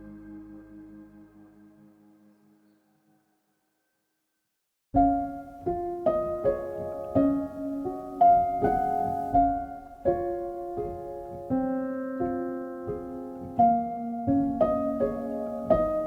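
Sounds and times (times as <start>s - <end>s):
gentle piano music: 0.0s - 3.0s, 5.0s - 16.0s.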